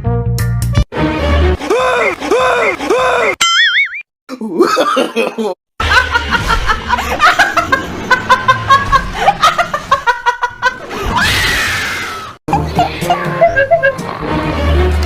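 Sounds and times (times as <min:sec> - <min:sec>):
person laughing: 0:04.3 - 0:11.1, 0:12.5 - 0:14.2.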